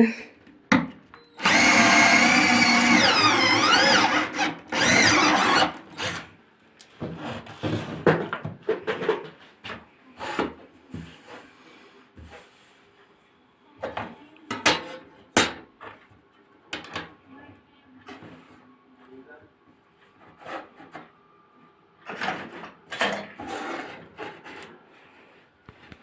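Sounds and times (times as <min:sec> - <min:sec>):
handheld power tool running: 0:01.4 - 0:06.2.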